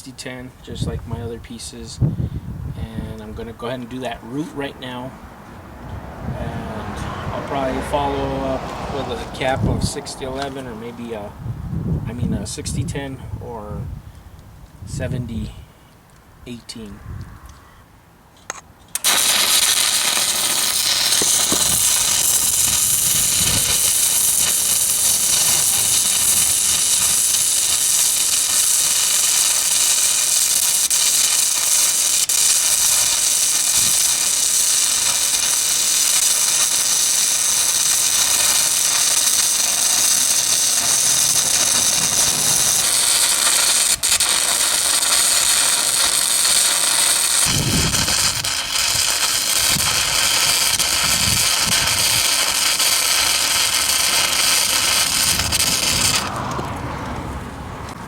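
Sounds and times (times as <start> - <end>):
welding arc crackling hiss: 18.5 - 56.8.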